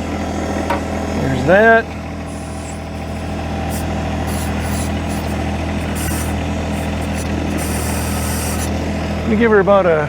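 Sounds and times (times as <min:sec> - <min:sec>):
tractor diesel engine running: 0:00.0 - 0:10.0
short high hissing: 0:02.3 - 0:08.8.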